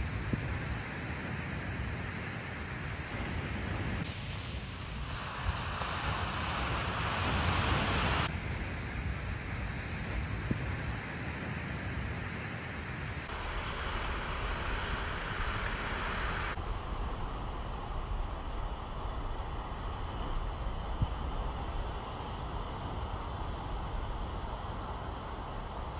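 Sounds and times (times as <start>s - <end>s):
wind buffeting microphone: 0.0s - 4.2s, 5.0s - 13.2s
ocean surf: 0.0s - 25.9s.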